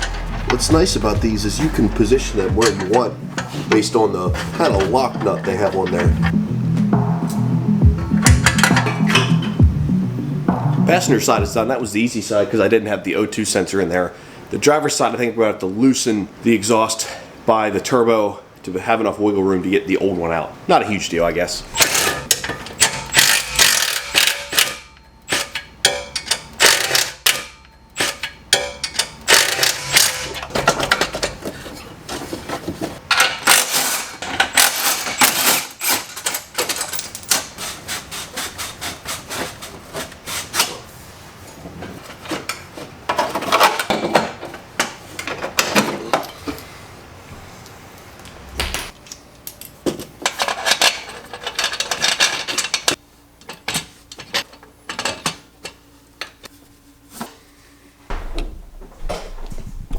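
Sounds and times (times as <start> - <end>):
metal clinks and knocks: 0.0 - 1.2, 8.2 - 9.6
ratchet clicks: 22.8 - 30.3.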